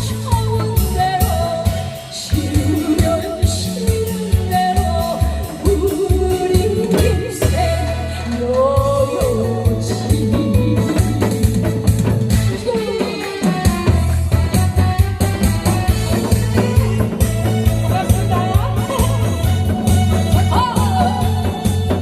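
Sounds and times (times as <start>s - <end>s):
person singing: 0.0s - 11.9s, 12.5s - 15.0s, 15.9s - 22.0s
music with heavy beat: 10.1s - 22.0s.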